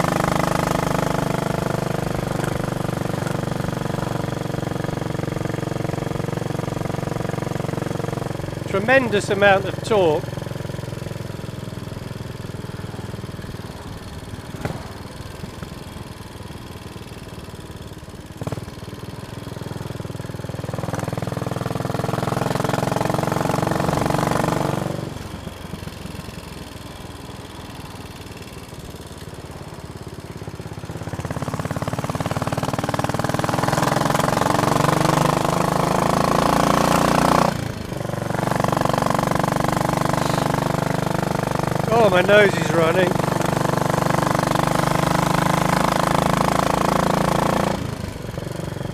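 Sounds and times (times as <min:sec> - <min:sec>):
motorcycle engine pulling: 0:28.7 - 0:48.9.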